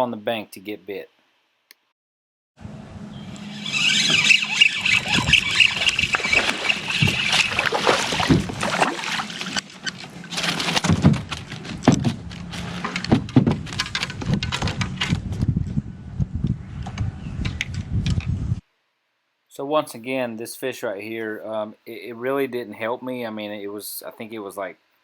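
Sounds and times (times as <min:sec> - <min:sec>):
steady high whine: 0:02.6 - 0:08.7
water splashing: 0:03.4 - 0:11.0.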